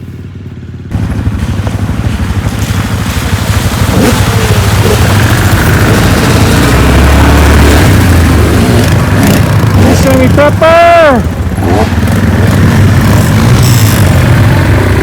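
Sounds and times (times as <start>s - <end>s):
off-road vehicle engine running: 0.0s - 15.0s
wind and ride noise: 0.0s - 15.0s.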